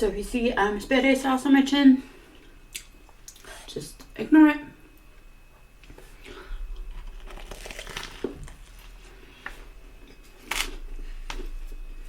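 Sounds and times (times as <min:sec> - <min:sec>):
faint low hum: 0:00.0 - 0:12.0
person chewing food: 0:06.2 - 0:11.4.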